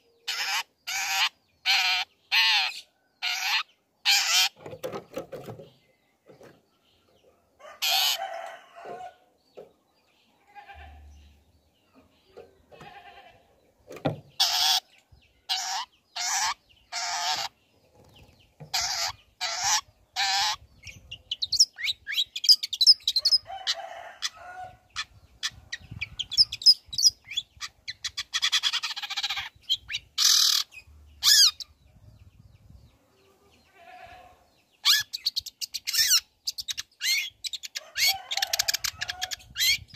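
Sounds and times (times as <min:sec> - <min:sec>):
bird harsh rasping calls: 0:00.3 - 0:04.6, 0:14.4 - 0:14.9, 0:15.5 - 0:17.6, 0:18.7 - 0:20.6, 0:25.0 - 0:31.6.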